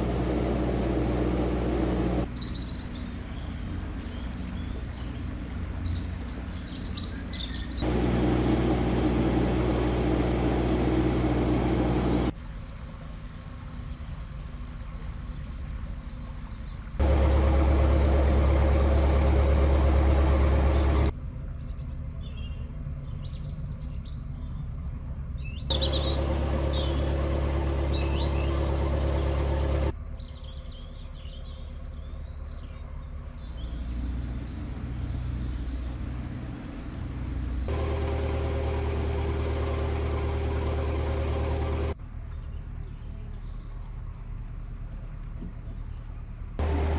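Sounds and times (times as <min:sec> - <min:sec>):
boat engine running: 0:00.0 - 0:02.3, 0:07.8 - 0:12.4, 0:17.0 - 0:21.1, 0:25.7 - 0:30.0, 0:37.7 - 0:42.0, 0:46.6 - 0:46.9
small birds chirping: 0:00.0 - 0:12.4, 0:15.2 - 0:36.9.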